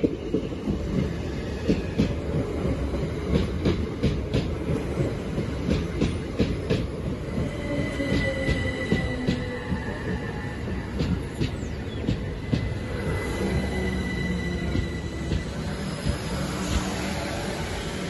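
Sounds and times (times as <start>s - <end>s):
train rumbling past: 0.0s - 18.0s
high-pitched wheel squeal: 13.2s - 15.8s.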